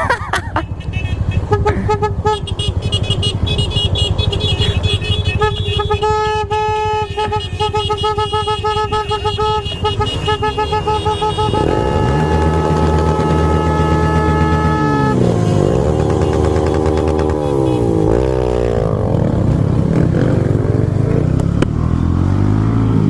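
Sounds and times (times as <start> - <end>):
engines running: 0.0 - 23.0
vehicle horn honking: 0.7 - 18.4
engine revving: 9.8 - 23.0.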